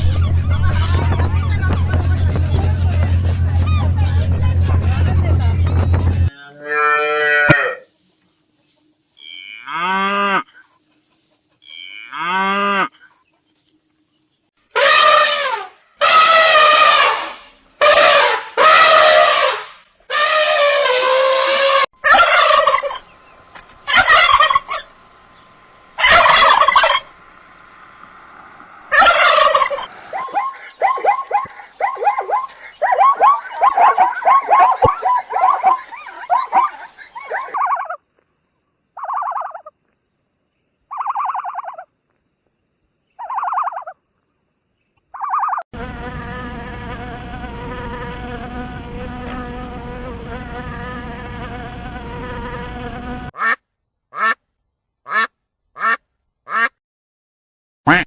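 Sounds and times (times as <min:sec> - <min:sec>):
chattering animal calls: 0:00.0 - 0:06.3, 0:22.0 - 0:38.0
animal calls: 0:00.0 - 0:06.4, 0:20.2 - 0:38.0, 0:39.0 - 0:39.7, 0:40.9 - 0:41.9.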